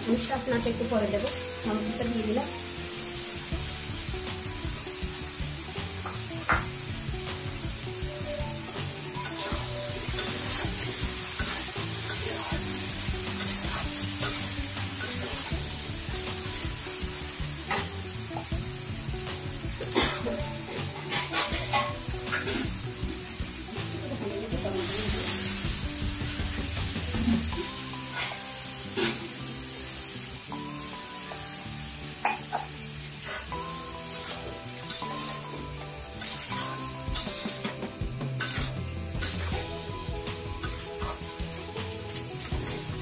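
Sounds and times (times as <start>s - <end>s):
vegetables sizzling in oil: 0.0s - 43.0s
spatula scraping and knocking pan: 20.9s - 22.7s, 36.2s - 39.7s.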